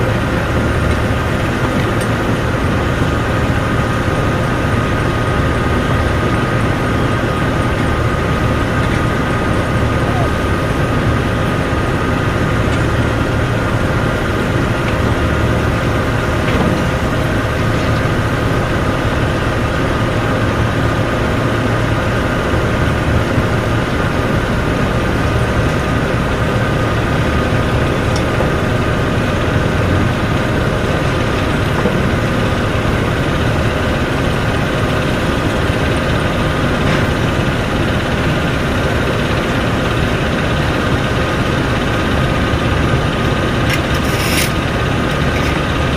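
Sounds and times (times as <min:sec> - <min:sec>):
diesel machinery drone: 0:00.0 - 0:45.9.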